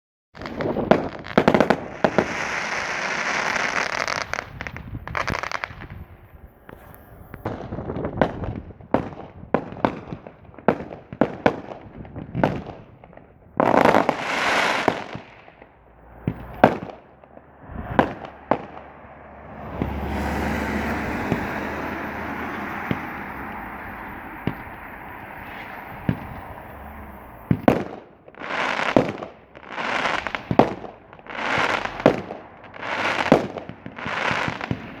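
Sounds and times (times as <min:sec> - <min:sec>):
fireworks crackling hiss: 0:00.4 - 0:07.5, 0:13.6 - 0:16.9, 0:19.5 - 0:35.0
fireworks banging: 0:00.4 - 0:35.0.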